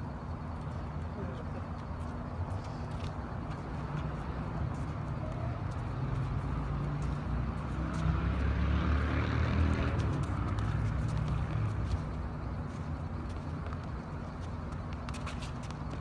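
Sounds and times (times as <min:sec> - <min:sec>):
vehicle engine passing by: 0:06.0 - 0:11.9.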